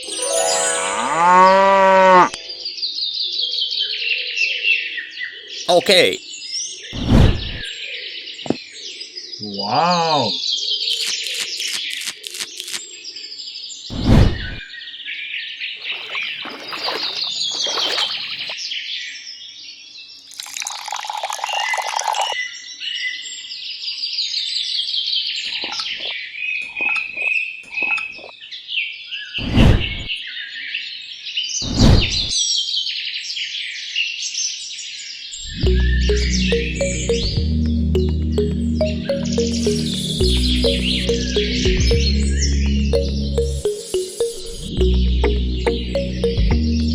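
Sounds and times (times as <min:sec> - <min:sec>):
birds chirping: 0:15.8 - 0:18.6, 0:35.4 - 0:46.9.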